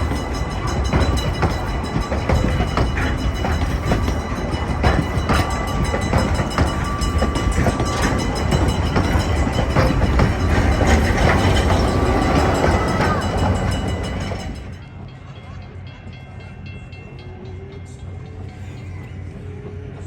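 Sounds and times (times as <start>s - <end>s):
wheels clicking over rail joints: 0.0s - 15.2s
train rumbling: 0.0s - 20.0s.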